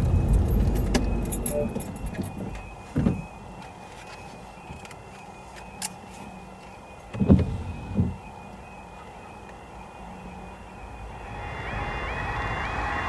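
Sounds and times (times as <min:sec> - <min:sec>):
level crossing alarm tone: 0:00.0 - 0:07.1.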